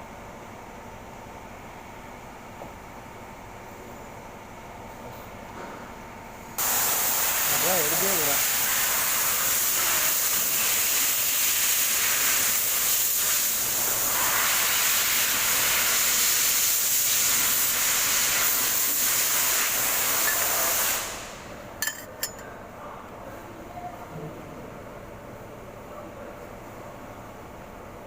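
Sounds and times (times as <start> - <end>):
loud steady hiss: 6.6 - 21.5.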